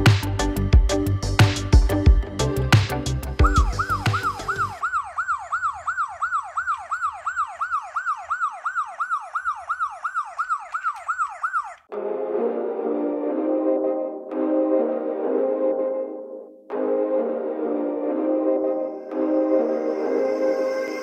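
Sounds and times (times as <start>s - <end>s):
music with heavy drums: 0.0s - 4.5s
music: 0.0s - 4.8s, 11.9s - 21.0s
police siren yelping: 3.4s - 11.9s.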